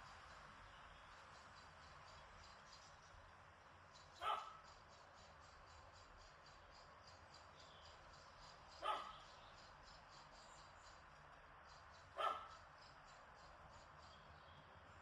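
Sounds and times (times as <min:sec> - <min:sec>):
faint breeze: 0:00.0 - 0:15.0
dog barking: 0:04.2 - 0:04.6, 0:08.8 - 0:09.3, 0:12.2 - 0:12.6.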